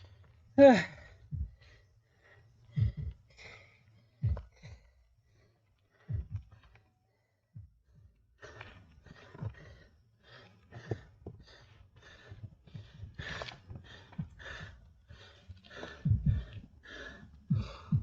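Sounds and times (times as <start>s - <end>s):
heavy rhythmic panting: 0.0s - 18.0s
low thuds: 1.2s - 1.7s, 2.7s - 3.2s, 4.2s - 4.8s, 6.1s - 6.6s, 16.0s - 16.6s, 17.5s - 18.0s.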